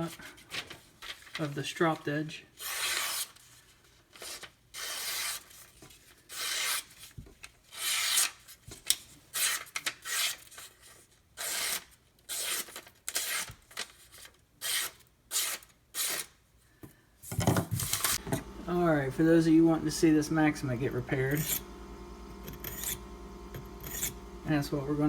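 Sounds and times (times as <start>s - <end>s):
knife sharpening strokes: 21.3s - 21.6s, 22.4s - 24.2s.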